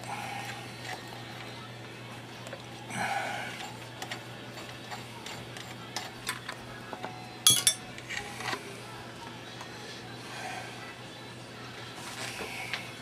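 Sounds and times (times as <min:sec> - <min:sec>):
metal clinks: 0:07.4 - 0:07.8.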